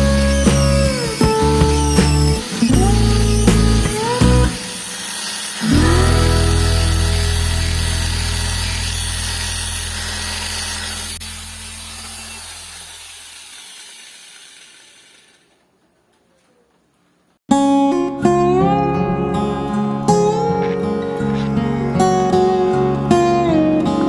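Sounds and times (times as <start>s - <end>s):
plucked-string music: 0.0s - 4.8s, 5.6s - 9.0s, 17.5s - 24.0s
grinding machine motor humming: 0.0s - 15.6s
background music: 5.7s - 8.4s, 17.5s - 24.0s.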